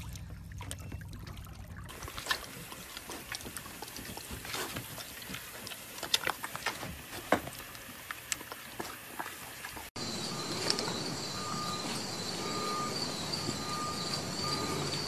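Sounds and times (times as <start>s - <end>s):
low steady hum: 0.0s - 4.4s
pig licking and chomping: 0.0s - 11.0s
water sloshing in a pool: 0.0s - 12.9s.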